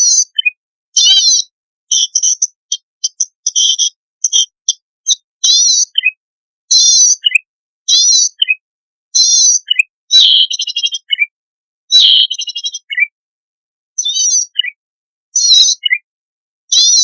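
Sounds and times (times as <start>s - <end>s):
bird song buzzy trill: 0.0s - 13.1s, 14.0s - 16.1s, 16.7s - 17.0s.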